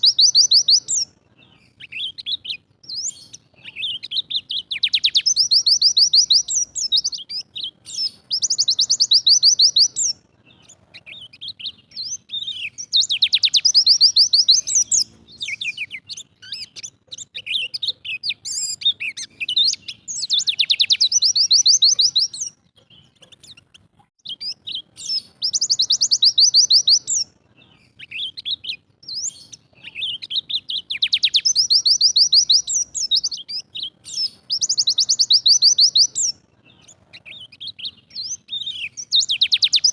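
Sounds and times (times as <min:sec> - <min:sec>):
bird singing fast high trills: 0:00.0 - 0:23.1, 0:24.2 - 0:39.9
bird chirps: 0:00.0 - 0:39.9.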